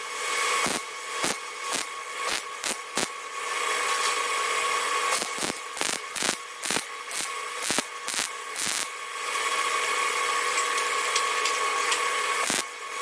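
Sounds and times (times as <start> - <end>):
power tool motor whining on steel: 5.1 - 8.9, 12.4 - 13.0.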